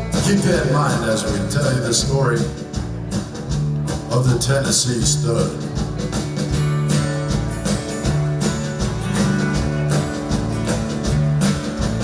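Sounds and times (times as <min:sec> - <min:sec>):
bass guitar: 0:00.0 - 0:12.0
drums: 0:00.0 - 0:12.0
electric guitar: 0:05.5 - 0:12.0.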